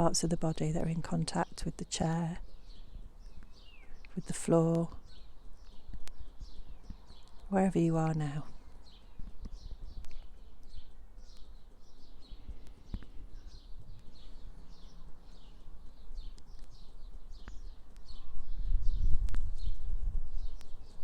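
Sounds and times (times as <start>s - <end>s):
small bird chirping: 0.0s - 21.0s.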